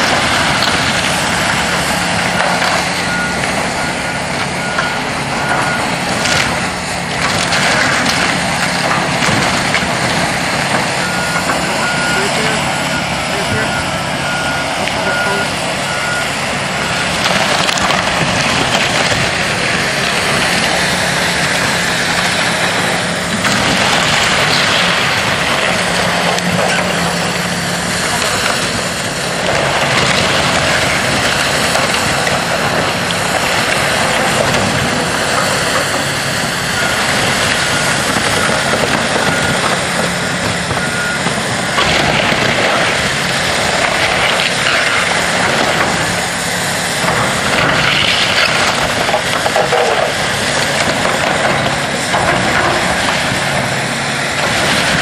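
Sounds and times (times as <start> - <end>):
diesel engine drone: 0.0 - 55.0
loud rush of noise: 0.0 - 55.0
reversing alarm beeping: 1.6 - 6.7, 10.7 - 17.6, 35.4 - 42.1.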